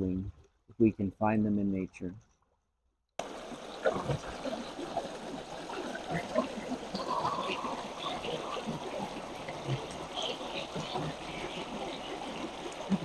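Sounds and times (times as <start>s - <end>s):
small water splashes: 3.2s - 13.0s
stream babbling: 3.2s - 13.0s
water rushing: 3.2s - 13.0s.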